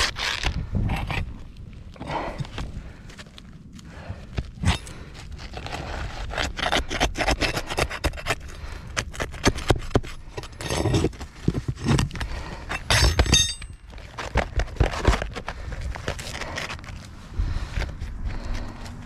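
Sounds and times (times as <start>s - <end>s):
scraping and knocking of shingles: 3.9s - 18.7s
metallic clink: 12.7s - 13.8s.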